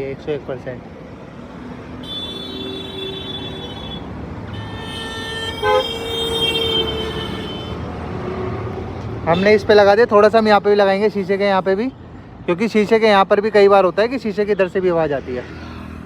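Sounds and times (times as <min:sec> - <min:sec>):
road traffic going by: 0:00.0 - 0:16.0
vehicle horns honking: 0:02.0 - 0:07.8, 0:09.3 - 0:09.6.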